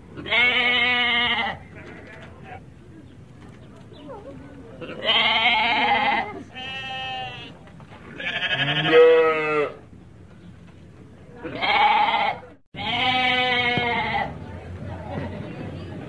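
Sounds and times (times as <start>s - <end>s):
sheep bleating: 0.2s - 2.6s, 4.8s - 7.6s, 8.2s - 9.8s, 11.4s - 14.3s.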